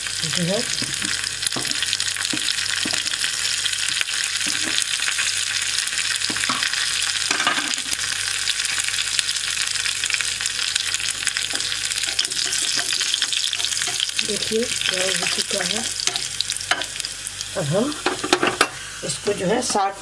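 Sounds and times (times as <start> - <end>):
spices sizzling in hot oil: 0.0 - 20.0
ladle scraping a pan: 12.0 - 14.0.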